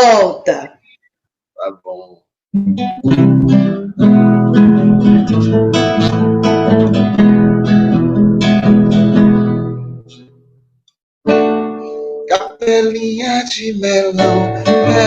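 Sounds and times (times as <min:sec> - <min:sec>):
guitar strumming chords: 0:02.6 - 0:10.5, 0:11.3 - 0:15.0.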